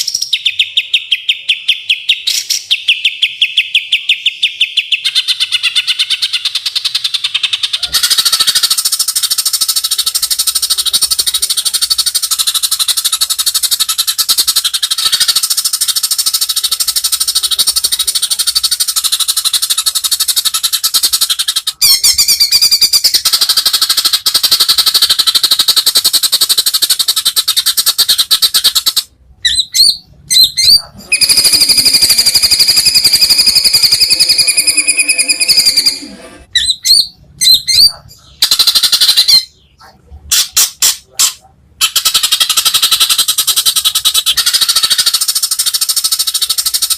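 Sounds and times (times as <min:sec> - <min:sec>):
songbird rattling trill: 0:31.1 - 0:36.0
bird whistling high notes: 0:31.2 - 0:36.9.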